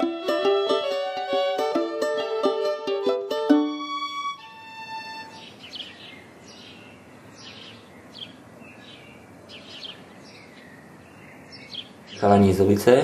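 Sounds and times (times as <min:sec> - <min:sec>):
outdoor ambience hiss: 0:00.0 - 0:13.0
small birds chirping: 0:04.4 - 0:13.0.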